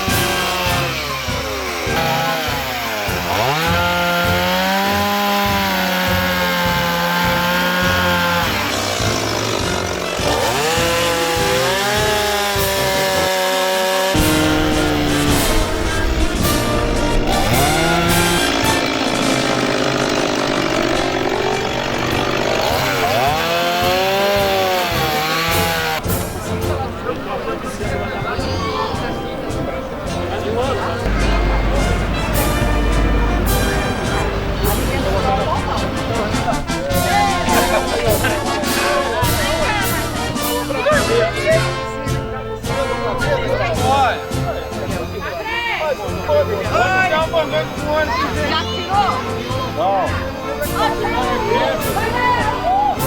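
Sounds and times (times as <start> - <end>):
chainsaw engine running: 0.0 - 28.3, 29.0 - 53.0.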